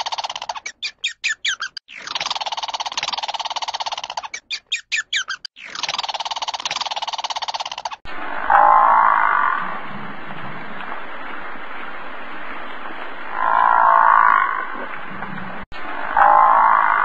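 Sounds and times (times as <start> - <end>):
animal calling: 0.0 - 9.6.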